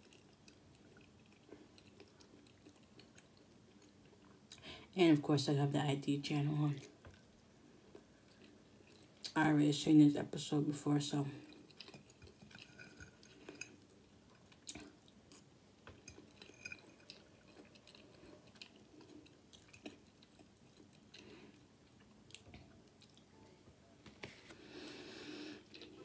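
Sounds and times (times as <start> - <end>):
chewing rice: 0.0 - 4.6, 6.8 - 9.4, 11.4 - 23.3, 25.2 - 26.0.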